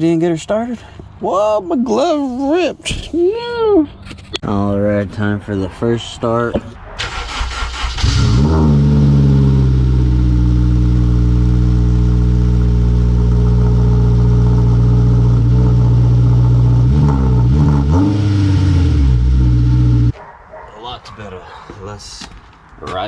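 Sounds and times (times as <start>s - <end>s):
engine throttle blips: 6.5s - 20.1s
car engine starting and idling: 6.9s - 20.1s.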